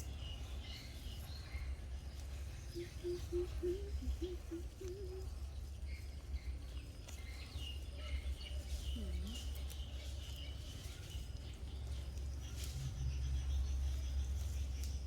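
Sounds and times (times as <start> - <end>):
small birds chirping: 0.0 - 15.0
low rumble: 11.5 - 15.0.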